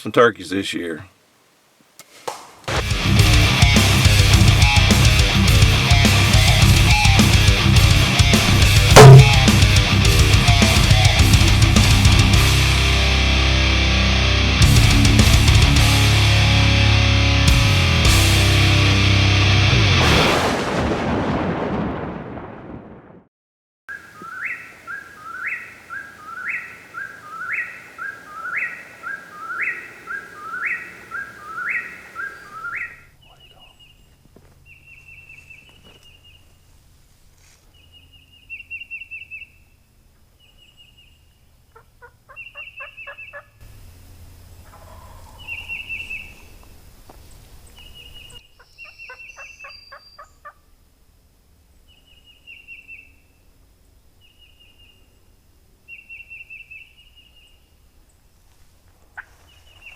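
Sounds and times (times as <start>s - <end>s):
bird repeating loud rising note: 9.0s - 9.5s, 23.9s - 33.0s
rapid rattling bird calls: 23.9s - 33.8s
songbird chirping: 23.9s - 36.6s, 37.6s - 43.9s, 44.6s - 50.7s, 51.6s - 58.3s, 59.0s - 59.9s.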